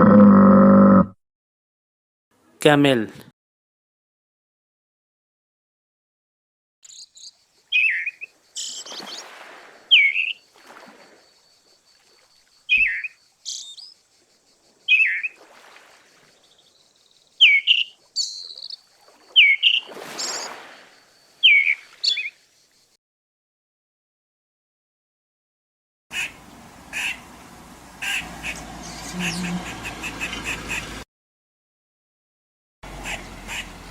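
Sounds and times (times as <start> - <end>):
birds chirping: 6.8 - 22.9, 26.1 - 31.0, 32.9 - 33.9.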